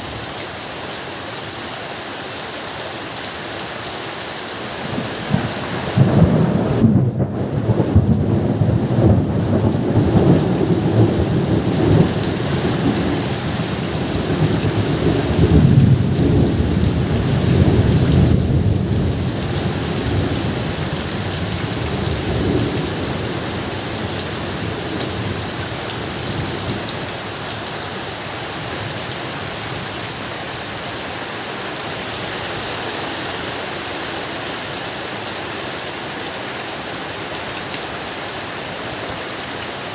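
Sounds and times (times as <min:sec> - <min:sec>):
heavy rain: 0:00.0 - 0:39.9
rolling thunder: 0:04.9 - 0:25.5.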